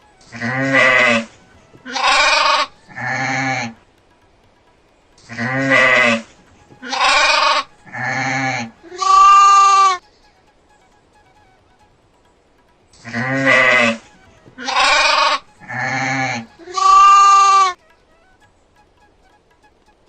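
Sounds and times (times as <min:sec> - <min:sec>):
goats bleating: 0:00.0 - 0:03.9, 0:05.2 - 0:10.0, 0:12.9 - 0:18.5.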